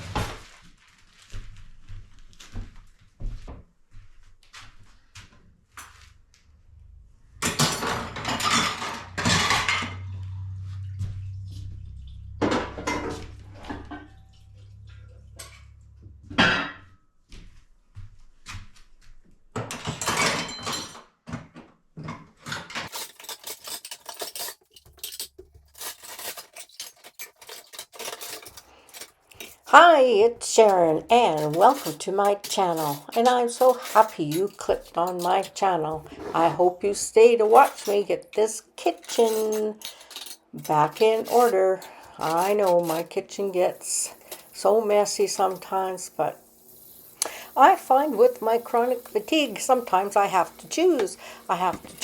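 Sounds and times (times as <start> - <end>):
dishes and cutlery clinking: 7.4 - 10.1, 19.6 - 21.1, 22.0 - 29.9, 30.5 - 36.7, 37.4 - 46.0, 47.2 - 52.0.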